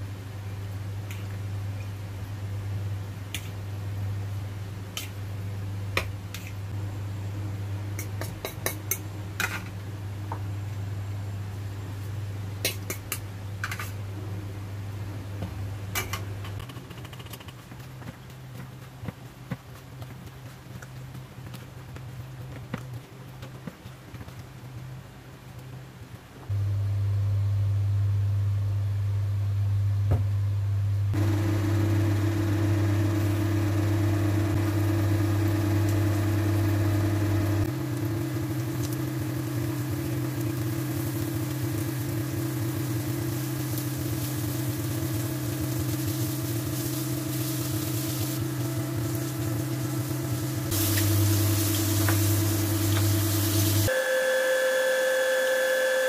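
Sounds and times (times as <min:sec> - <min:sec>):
low steady hum: 0:17.6 - 0:53.9
chicken wings sizzling in oil: 0:31.2 - 0:56.0.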